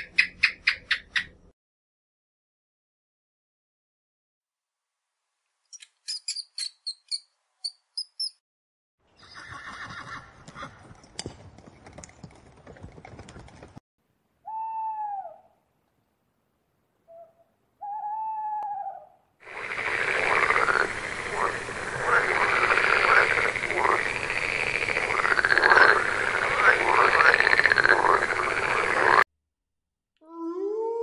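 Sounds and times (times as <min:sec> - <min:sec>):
frog calling: 0:19.4 - 0:29.2
noise: 0:19.4 - 0:29.2.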